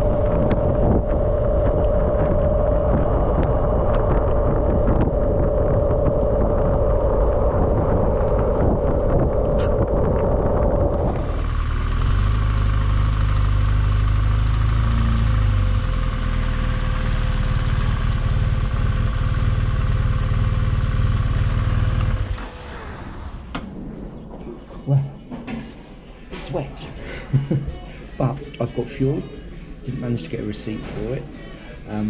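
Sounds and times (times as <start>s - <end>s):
wind rush: 0.0s - 12.4s
motorcycle engine idling: 11.2s - 22.3s.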